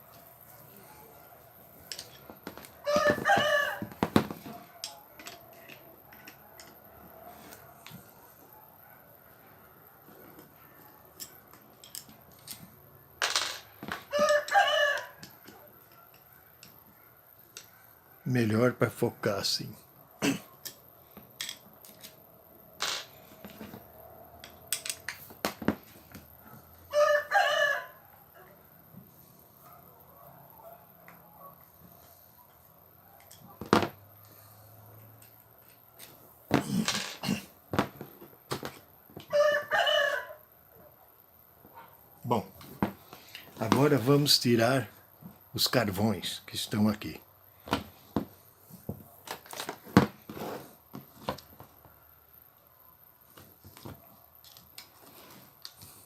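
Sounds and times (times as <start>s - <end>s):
rooster crowing: 2.8s - 5.0s, 14.1s - 15.7s, 26.8s - 28.6s, 39.2s - 40.5s.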